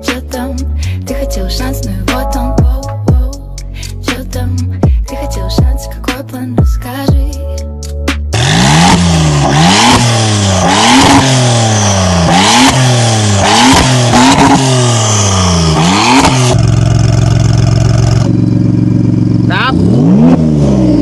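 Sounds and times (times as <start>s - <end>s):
car engine idling: 8.3s - 21.0s
sports car engine revving: 8.3s - 21.0s.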